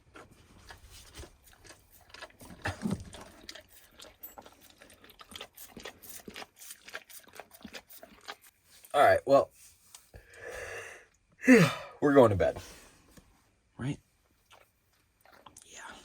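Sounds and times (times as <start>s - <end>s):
dog licking a plate: 0.1s - 8.6s.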